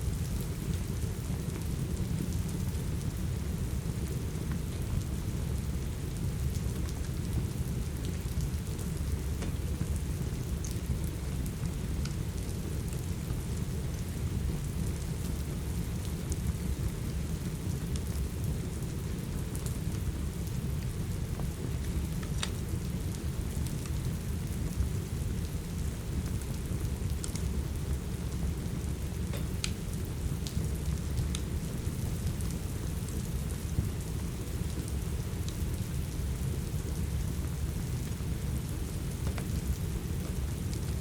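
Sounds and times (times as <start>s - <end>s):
steady rain: 0.0s - 41.0s
wood fire crackling: 0.1s - 41.0s.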